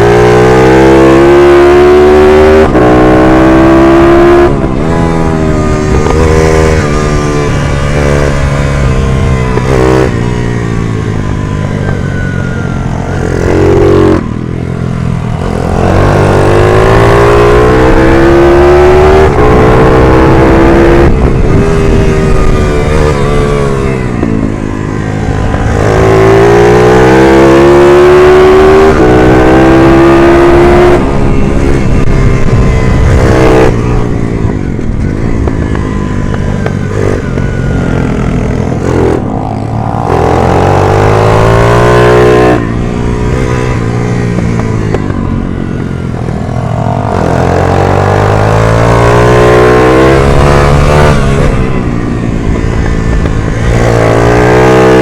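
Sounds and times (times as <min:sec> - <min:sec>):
minibike engine revving: 0:25.1 - 0:55.0.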